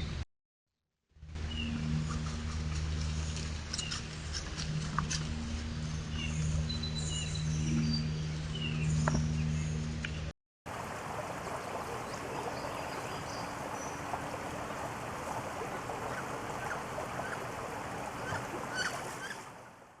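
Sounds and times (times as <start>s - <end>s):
steady rushing outdoor noise: 7.8s - 20.0s.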